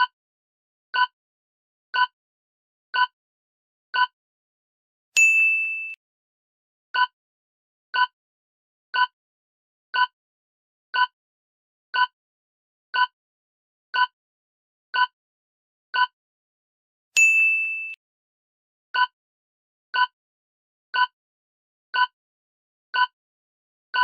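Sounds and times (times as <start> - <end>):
bright bell ding: 5.2 - 6.0, 17.2 - 18.0
short countdown beeps: 7.0 - 7.2, 9.0 - 9.2, 10.0 - 10.2, 11.0 - 11.2, 12.0 - 12.2, 13.0 - 13.2, 14.0 - 14.2, 15.0 - 15.2, 19.0 - 19.2, 20.0 - 20.2, 21.0 - 21.2, 22.0 - 22.2, 23.0 - 23.2.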